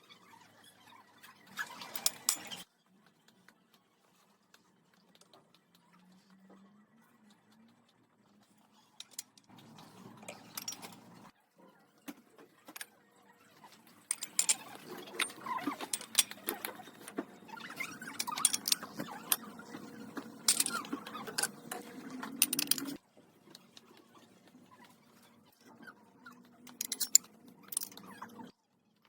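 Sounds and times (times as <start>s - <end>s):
utensils clicking and clinking: 1.6s - 2.7s, 9.0s - 11.3s, 14.0s - 23.9s, 26.4s - 28.5s.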